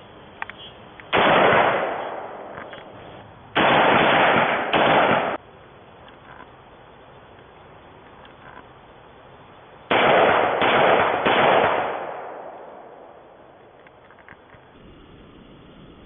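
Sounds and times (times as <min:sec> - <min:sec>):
loud rifle shots: 0:01.1 - 0:02.7, 0:03.6 - 0:05.4, 0:09.9 - 0:13.4.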